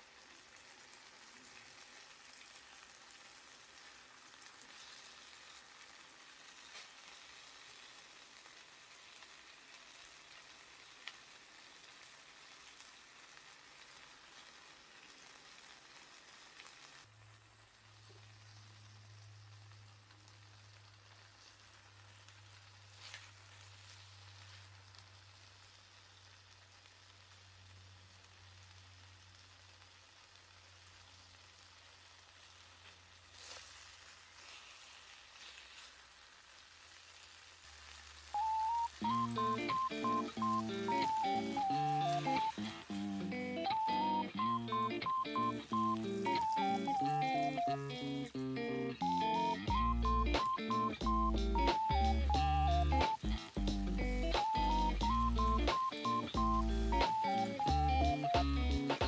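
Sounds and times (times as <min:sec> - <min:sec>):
chicken sizzling over wood fire: 0:00.0 - 0:59.0.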